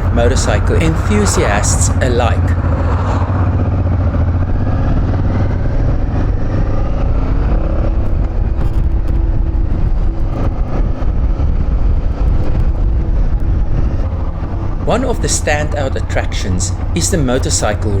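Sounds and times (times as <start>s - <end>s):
motorcycle running: 0.0s - 18.0s
wind rumble on microphone: 0.0s - 18.0s.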